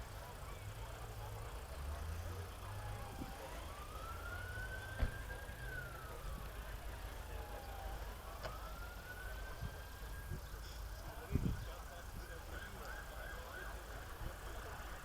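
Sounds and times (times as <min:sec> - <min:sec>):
low outdoor rumble: 0:00.0 - 0:15.0
emergency vehicle siren wailing: 0:01.0 - 0:11.1, 0:12.3 - 0:15.0.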